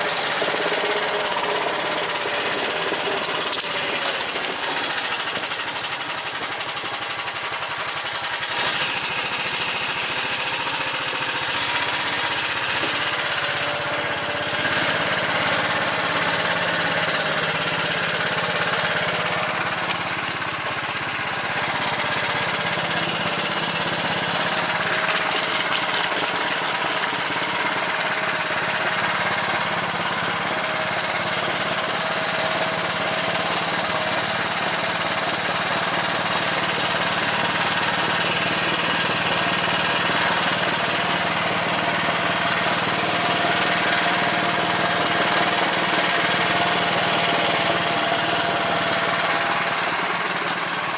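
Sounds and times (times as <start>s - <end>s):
vehicle engine running: 0.0s - 50.9s.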